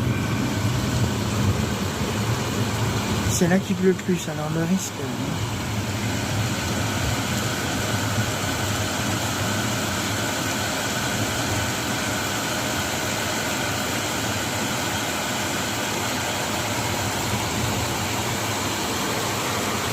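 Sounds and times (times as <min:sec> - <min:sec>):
low even hum: 0:00.0 - 0:09.7
heavy rain hissing: 0:00.0 - 0:19.9.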